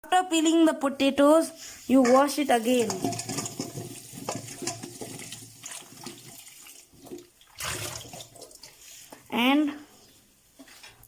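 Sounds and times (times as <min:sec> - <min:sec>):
potatoes knocking: 0:02.0 - 0:06.3
tap water splashing: 0:02.8 - 0:09.3.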